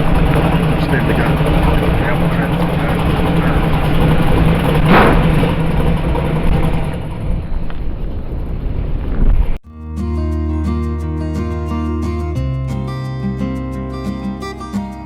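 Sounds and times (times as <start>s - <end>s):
car engine with road noise: 0.0s - 9.6s.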